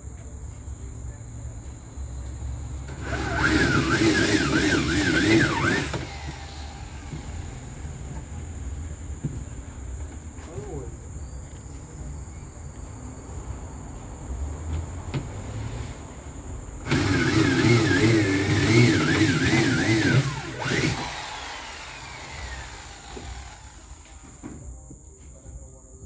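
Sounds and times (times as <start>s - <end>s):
motor running and winding down: 2.9s - 8.2s, 16.9s - 24.4s.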